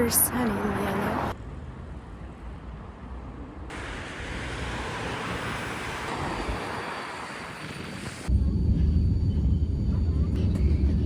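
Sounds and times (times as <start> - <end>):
traffic rumble and hiss: 0.0 - 8.3.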